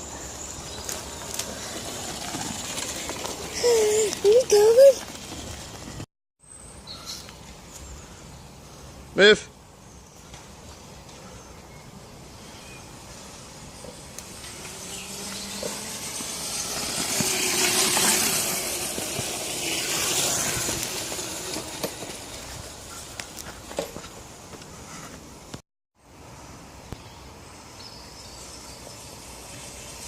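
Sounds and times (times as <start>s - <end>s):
tyres on dirt: 0.0s - 6.1s, 13.3s - 25.6s
electric motor whine: 14.2s - 22.0s.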